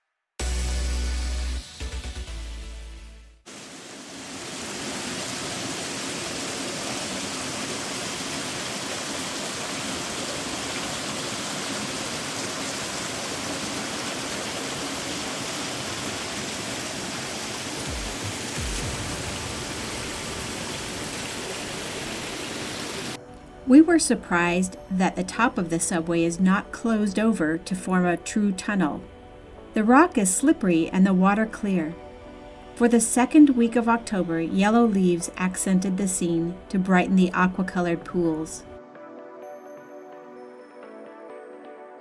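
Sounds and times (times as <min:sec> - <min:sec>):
music: 0:00.0 - 0:03.5, 0:17.8 - 0:42.0
creek water rushing over rock: 0:03.5 - 0:23.2.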